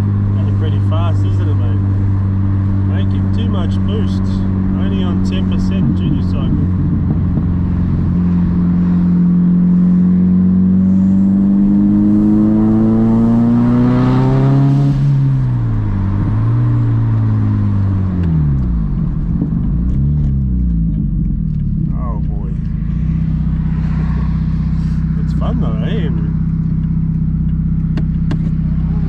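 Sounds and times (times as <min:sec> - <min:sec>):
turbocharged car engine revving: 0:00.0 - 0:29.0.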